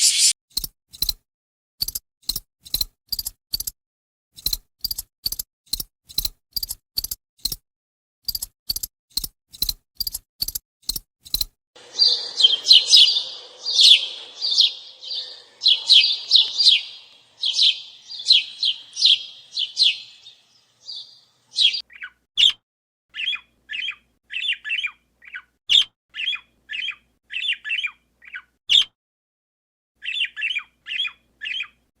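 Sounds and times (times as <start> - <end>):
small birds chirping: 0.0 - 0.3, 10.9 - 22.5.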